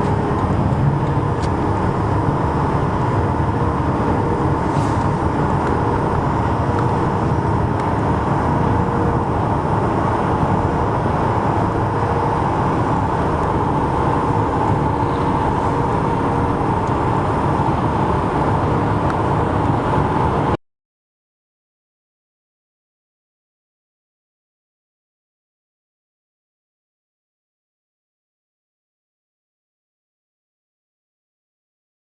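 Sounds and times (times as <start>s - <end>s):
highway traffic rumble: 0.0s - 20.6s.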